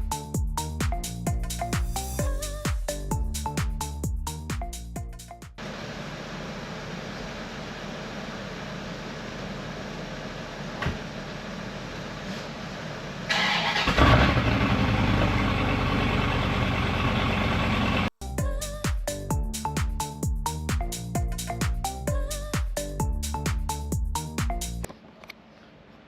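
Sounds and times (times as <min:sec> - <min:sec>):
car engine starting and running: 0:05.6 - 0:18.1.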